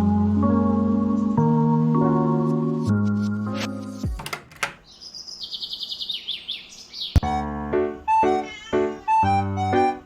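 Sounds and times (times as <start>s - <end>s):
background music sustained chords: 0.0s - 4.2s
sharp click: 4.2s - 4.9s
bird chirping high twitters: 4.8s - 7.3s.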